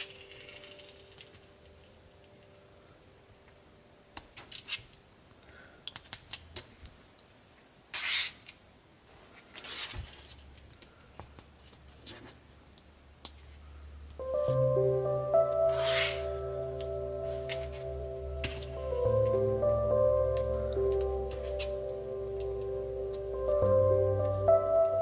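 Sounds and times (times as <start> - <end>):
music: 0.0 - 2.6, 14.2 - 25.0
rustling swishes: 15.7 - 16.4.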